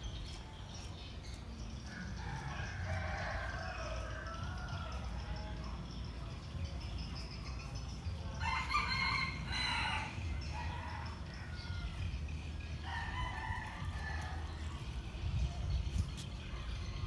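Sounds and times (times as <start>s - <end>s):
rooster crowing: 8.4s - 12.0s.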